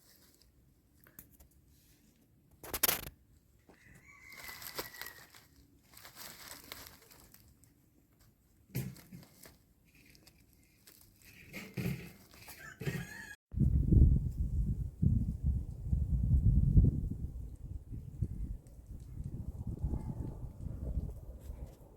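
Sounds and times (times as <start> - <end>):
rooster crowing: 3.7 - 5.4, 12.5 - 13.4
faint rustling: 4.3 - 12.6.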